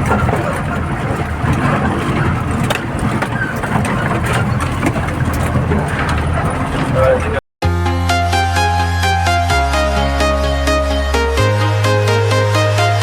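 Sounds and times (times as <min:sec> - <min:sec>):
rattles and knocks: 0:00.0 - 0:07.4
truck diesel engine running: 0:00.0 - 0:07.4.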